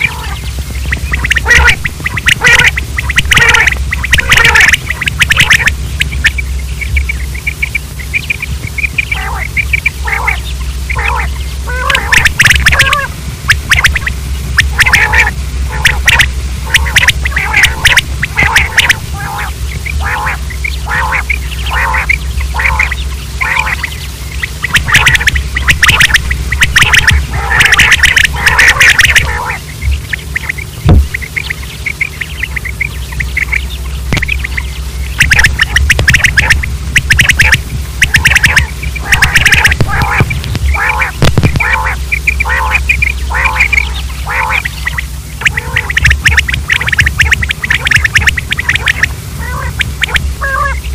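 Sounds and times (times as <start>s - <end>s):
quail calling: 0.0s - 50.9s
steady low hum: 0.0s - 50.9s.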